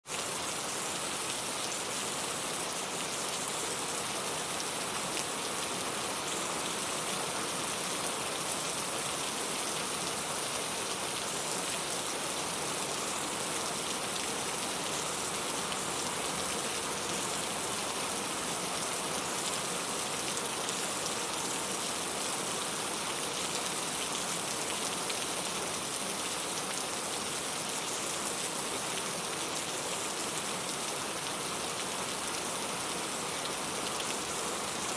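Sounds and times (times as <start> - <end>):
steady rain pattering: 0.0 - 34.9.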